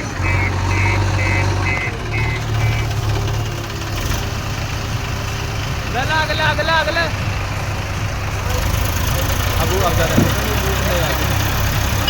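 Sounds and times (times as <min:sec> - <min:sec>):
reversing alarm beeping: 0:00.0 - 0:03.5
diesel engine running: 0:00.0 - 0:12.0.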